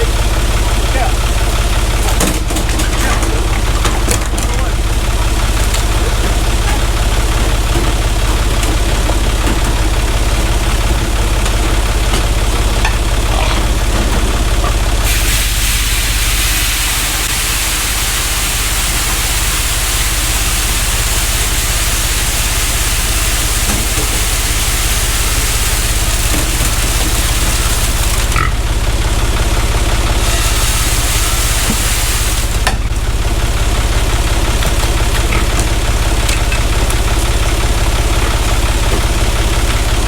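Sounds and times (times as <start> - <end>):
tractor engine idling: 0.0 - 40.0
steady hiss: 15.0 - 28.3, 30.2 - 32.6.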